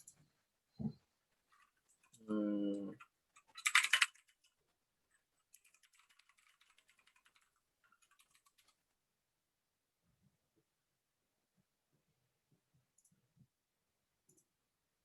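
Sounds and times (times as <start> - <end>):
faint computer keyboard typing: 3.0 - 4.6, 5.4 - 8.9, 12.9 - 13.2, 14.2 - 14.5.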